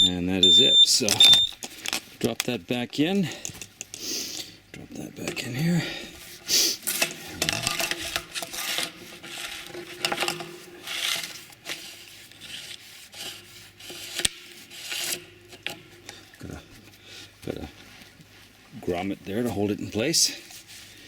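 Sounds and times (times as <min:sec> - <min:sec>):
cable rubbing and scraping: 0:06.2 - 0:21.0.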